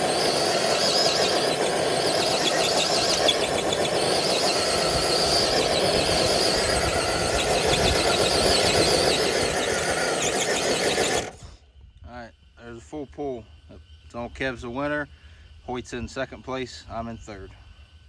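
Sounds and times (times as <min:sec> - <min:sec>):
electric motor whining and squealing: 0:00.0 - 0:11.5.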